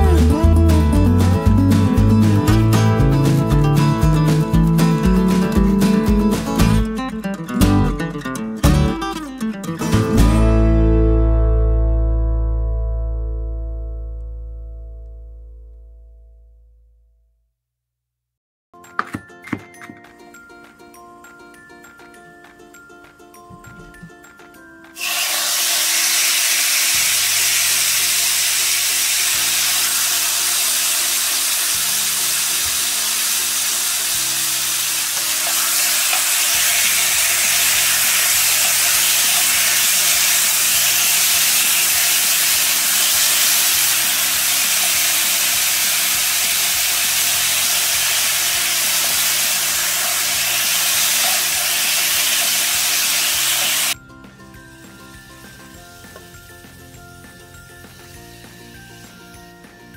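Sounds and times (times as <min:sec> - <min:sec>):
chicken sizzling in hot oil: 0:25.0 - 0:54.0, 0:54.6 - 0:59.6.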